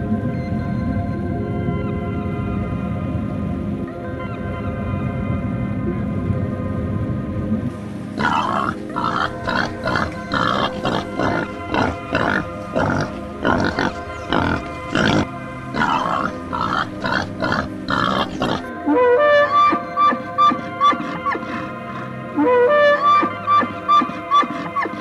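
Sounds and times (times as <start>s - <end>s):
background music: 0.0s - 25.0s
animal short calls: 8.2s - 18.7s, 19.7s - 25.0s
wind instrument melody: 18.7s - 24.9s.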